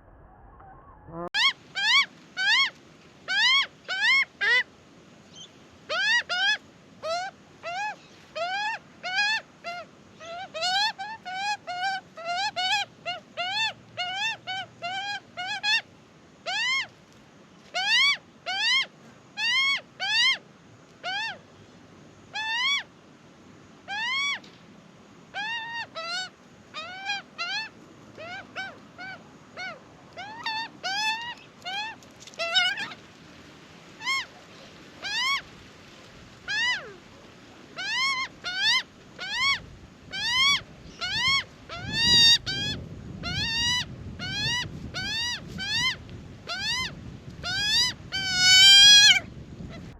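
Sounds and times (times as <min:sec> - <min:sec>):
young bird begging squawks: 0:25.4 - 0:33.0, 0:34.0 - 0:34.3, 0:35.0 - 0:35.4, 0:36.5 - 0:37.0, 0:37.8 - 0:49.9.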